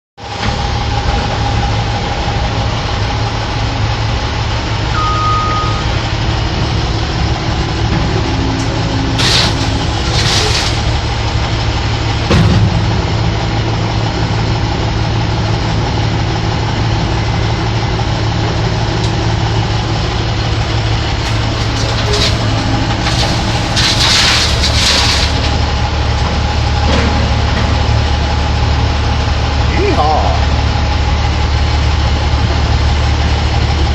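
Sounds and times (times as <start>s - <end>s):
diesel engine running at low revs: 0.2s - 33.9s
hissing bursts: 9.2s - 11.5s, 19.8s - 26.9s.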